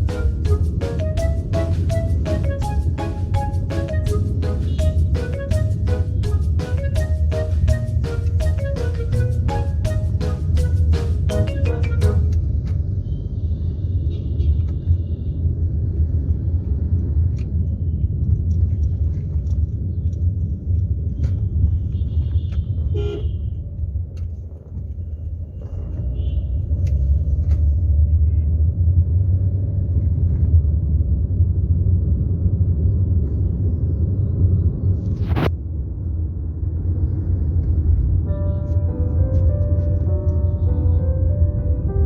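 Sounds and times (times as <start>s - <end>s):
vehicle traffic rumble: 0.0s - 42.0s
vehicle horn toots: 22.0s - 23.4s.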